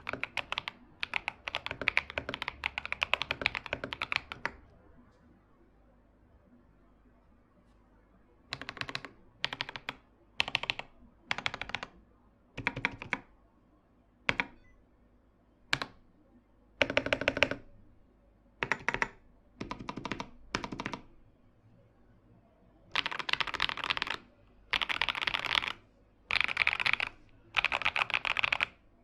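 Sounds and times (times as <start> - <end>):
mechanical keyboard typing: 0.0 - 4.6, 8.5 - 12.0, 12.6 - 13.3, 14.3 - 14.6, 15.7 - 16.0, 16.8 - 17.7, 18.6 - 21.1, 22.9 - 28.8.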